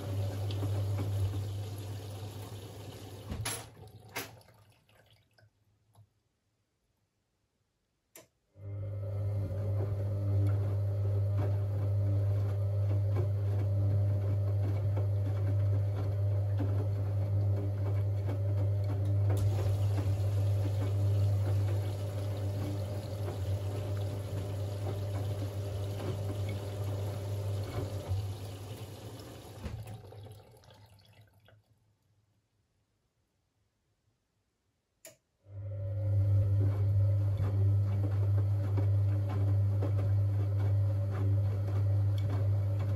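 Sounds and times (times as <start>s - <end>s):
water inlet valve humming: 0.0s - 4.2s, 18.8s - 31.1s
water rushing into machine: 0.0s - 5.3s, 19.4s - 31.5s.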